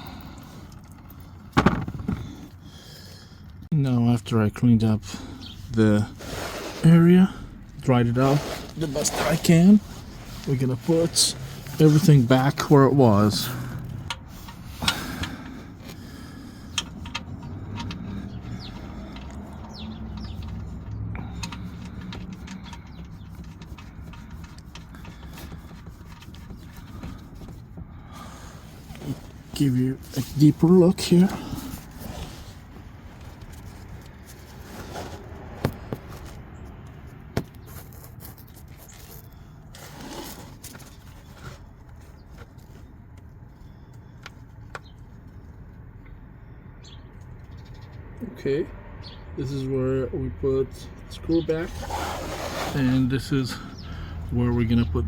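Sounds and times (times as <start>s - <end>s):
tools scraping and rustling: 5.0s - 45.5s, 51.5s - 53.8s.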